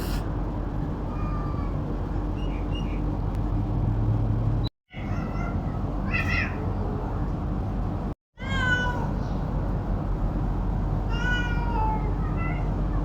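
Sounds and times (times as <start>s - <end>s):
cat meowing: 1.1s - 1.8s, 4.9s - 7.0s, 8.4s - 9.4s, 11.1s - 12.8s.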